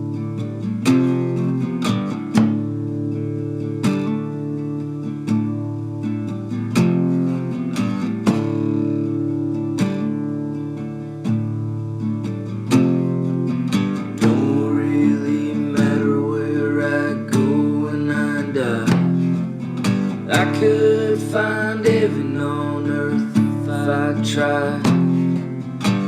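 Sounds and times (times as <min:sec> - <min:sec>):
acoustic guitar strumming chords: 0:00.0 - 0:26.0
bending guitar melody: 0:00.0 - 0:26.0.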